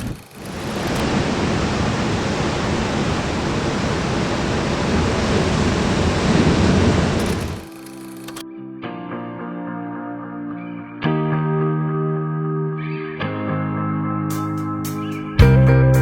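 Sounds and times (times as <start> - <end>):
loud rushing noise: 0.0 - 7.7.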